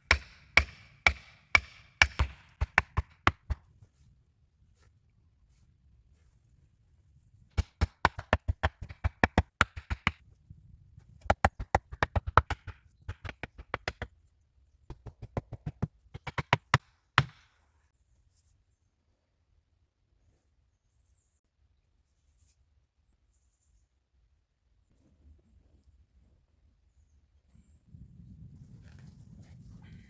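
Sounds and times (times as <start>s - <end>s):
quick sharp taps: 7.6s - 10.2s, 11.2s - 14.1s, 14.9s - 17.5s.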